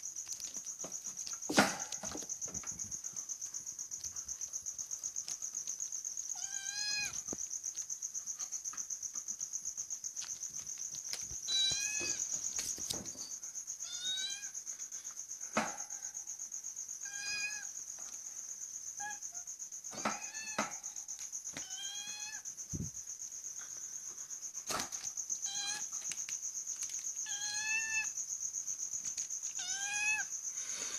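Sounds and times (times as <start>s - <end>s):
crickets trilling: 0.0s - 30.9s
cat meowing: 6.4s - 7.2s, 11.5s - 12.2s, 13.8s - 14.5s, 17.0s - 17.7s, 21.6s - 22.4s, 25.4s - 25.9s, 27.2s - 28.1s, 29.6s - 30.3s.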